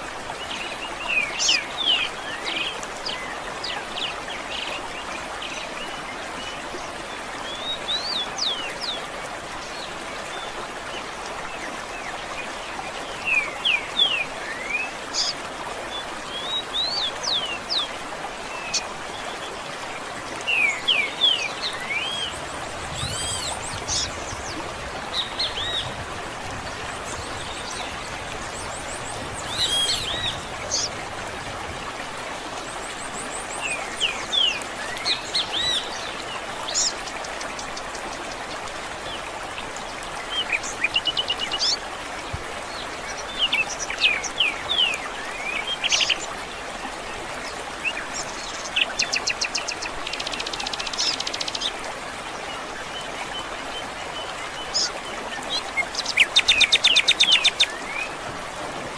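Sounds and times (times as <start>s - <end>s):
rush of running water or wind: 0.0s - 58.9s
birds singing and chirping: 20.4s - 32.0s.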